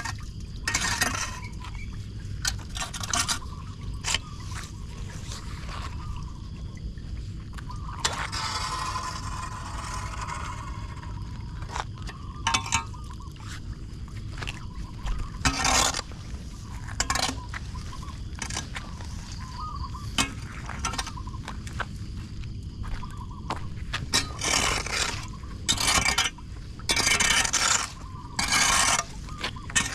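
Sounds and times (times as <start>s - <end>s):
low rumble of water: 0.0s - 29.9s
debris scraping on grate: 15.4s - 16.1s, 16.8s - 17.5s, 18.4s - 19.5s, 24.1s - 29.9s.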